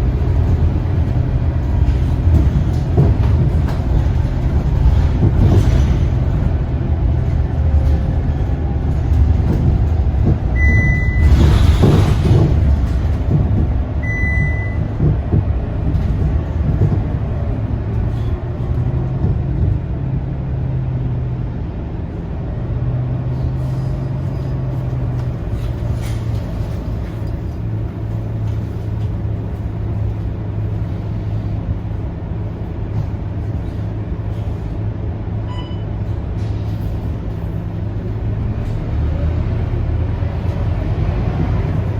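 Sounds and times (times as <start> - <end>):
bus diesel engine humming: 0.0 - 41.9
short high beep: 14.0 - 14.9, 35.5 - 35.9.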